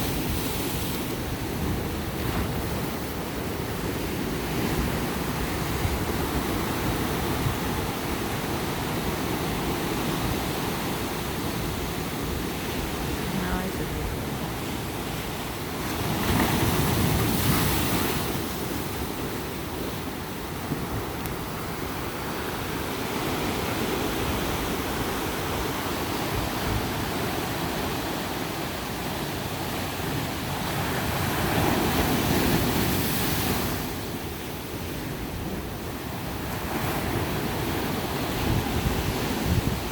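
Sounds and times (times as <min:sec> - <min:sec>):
ocean surf washing onto beach: 0:00.0 - 0:39.9
wind buffeting microphone: 0:34.8 - 0:39.9.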